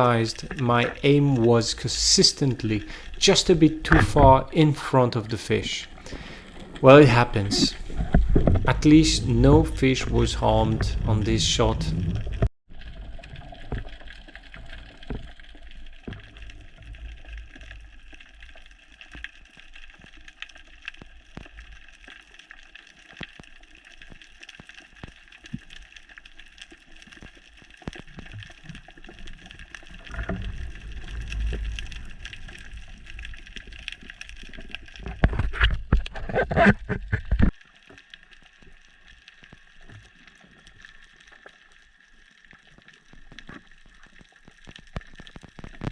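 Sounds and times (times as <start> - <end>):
sharp crackling clicks: 0.0 - 4.9
faint underwater hum: 0.0 - 12.5, 29.2 - 34.9
low rumbling water noise: 0.0 - 19.0, 28.4 - 36.2.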